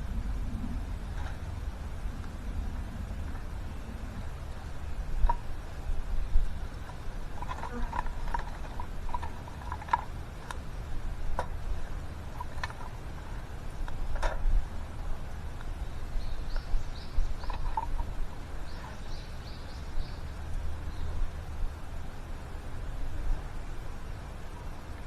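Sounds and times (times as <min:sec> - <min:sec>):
low steady rumble: 0:00.0 - 0:25.0
small bird chirping: 0:15.8 - 0:21.2.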